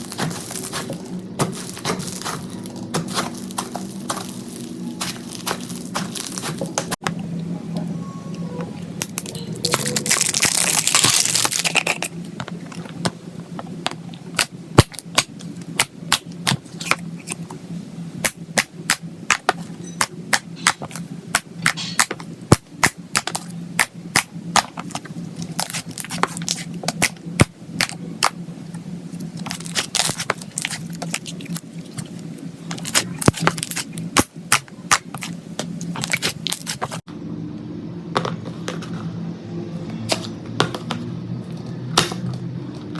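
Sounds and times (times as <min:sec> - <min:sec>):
slime popping and crackling: 0:09.0 - 0:12.1, 0:29.4 - 0:32.2.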